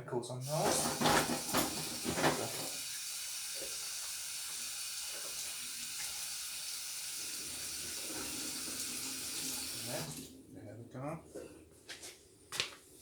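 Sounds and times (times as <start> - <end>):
tap water running into sink: 0.4 - 10.3.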